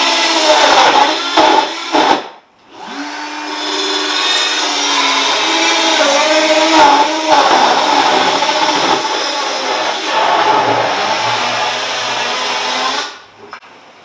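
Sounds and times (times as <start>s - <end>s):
circular saw cutting wood: 2.7s - 13.2s.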